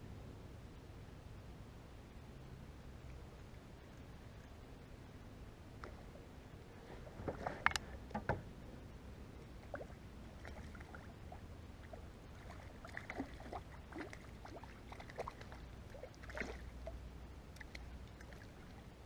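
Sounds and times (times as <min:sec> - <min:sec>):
light water sounds: 0:02.8 - 0:19.0
knocks in a kayak: 0:08.1 - 0:08.5.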